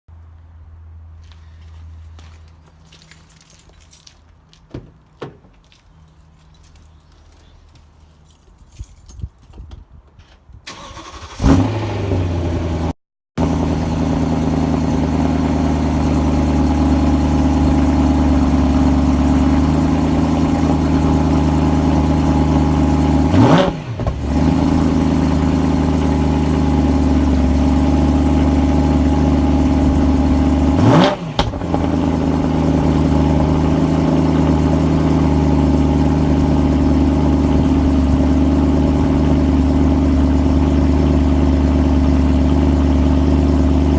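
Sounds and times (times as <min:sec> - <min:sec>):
car engine starting and idling: 0:10.7 - 0:43.9
engine revving: 0:10.7 - 0:43.9.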